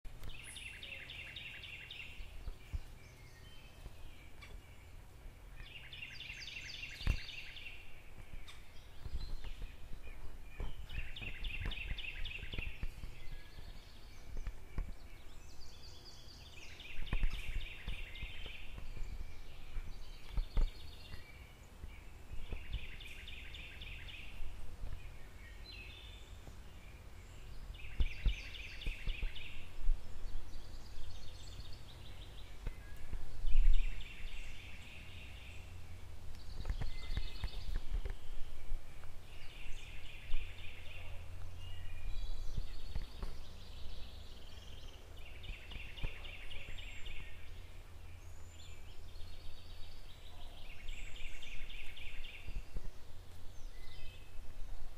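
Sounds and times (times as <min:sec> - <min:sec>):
songbird trilled song: 0:00.1 - 0:54.9.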